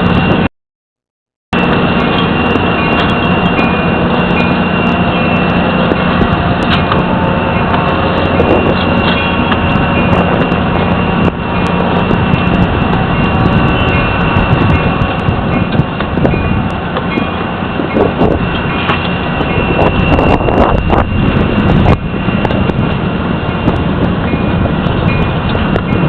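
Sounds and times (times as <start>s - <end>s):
train rumbling past: 0.0s - 0.5s, 1.6s - 26.0s
thin high whine: 1.6s - 26.0s.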